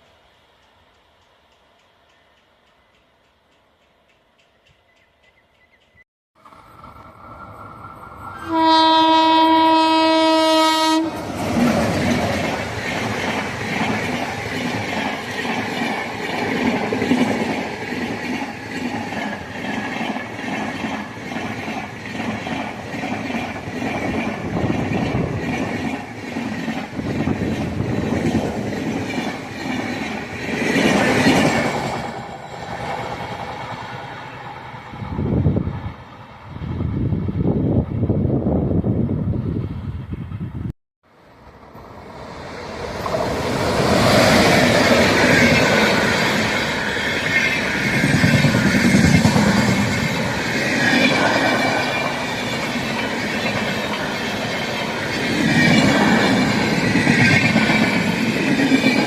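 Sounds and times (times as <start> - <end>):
train horn blast: 8.3 - 11.3
train wheels clattering on rails: 11.2 - 34.7, 42.9 - 59.0.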